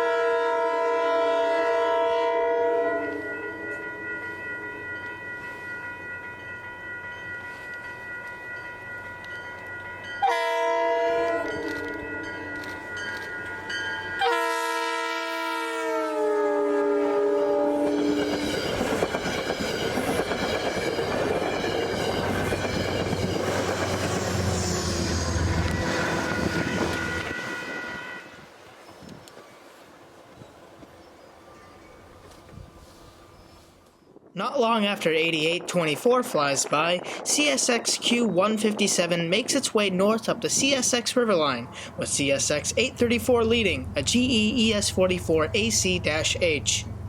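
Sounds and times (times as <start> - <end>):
locomotive air horn: 0.0 - 3.8, 10.2 - 12.4, 14.2 - 18.5, 24.4 - 28.5
train wheels clacking on rails: 17.9 - 27.4.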